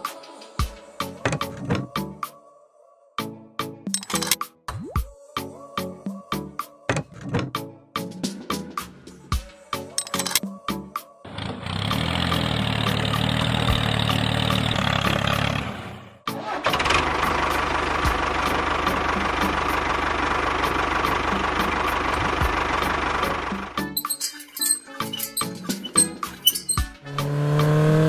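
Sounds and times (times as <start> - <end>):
engine running: 11.3 - 24.2, 25.0 - 28.0.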